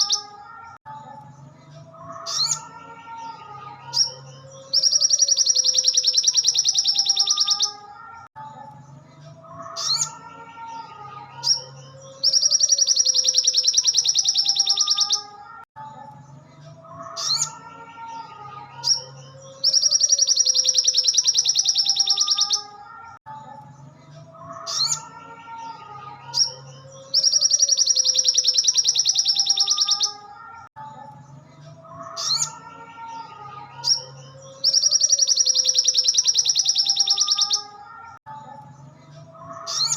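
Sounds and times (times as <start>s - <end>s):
sharp high bird chirps: 0.0s - 0.8s, 3.9s - 8.2s, 11.4s - 15.6s, 18.8s - 22.9s, 26.3s - 30.8s, 33.8s - 38.2s.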